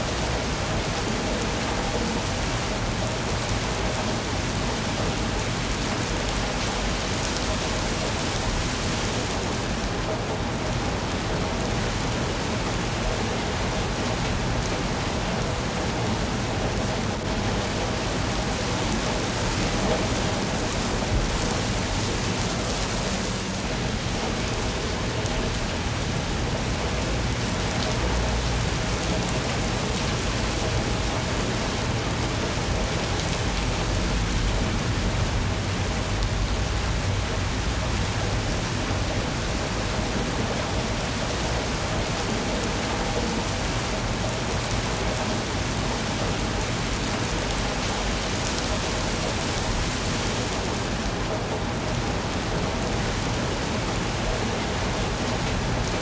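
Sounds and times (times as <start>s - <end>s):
rain hissing and pattering: 0.0s - 56.0s.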